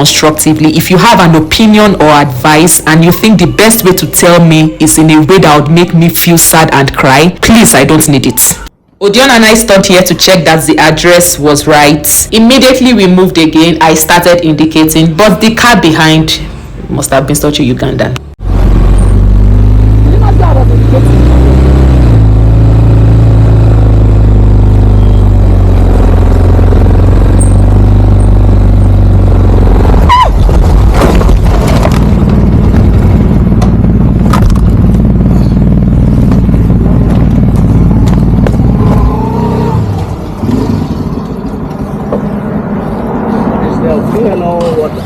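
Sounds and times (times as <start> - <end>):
motorcycle engine running: 18.4 - 42.5.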